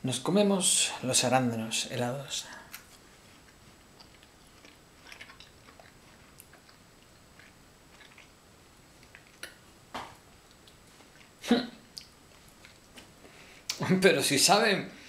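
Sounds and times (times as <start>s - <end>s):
crunching chewing of frozen berries: 2.4s - 9.7s.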